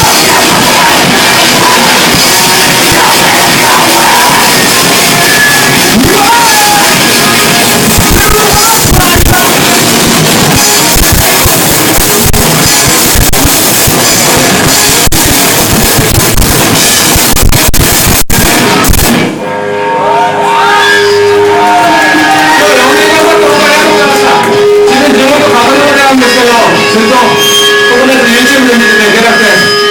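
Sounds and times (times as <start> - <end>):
person singing: 0.0 - 7.4
drum kit: 0.0 - 19.6
distorted guitars: 0.0 - 29.9.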